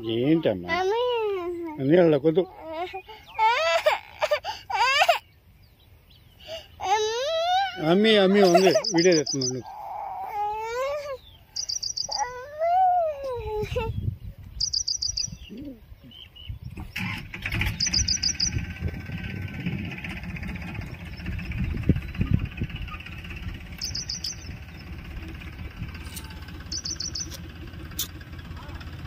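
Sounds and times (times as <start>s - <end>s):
small bird trilling: 4.9s - 28.2s
low rumbling noise: 13.4s - 29.0s.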